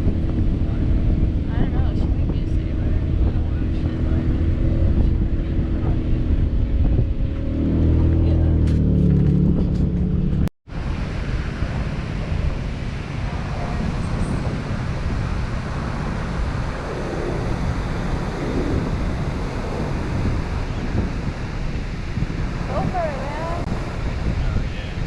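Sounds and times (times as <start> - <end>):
loud steady droning tone: 0.0 - 25.0
wind buffeting microphone: 0.0 - 25.0
surf washing: 10.7 - 25.0.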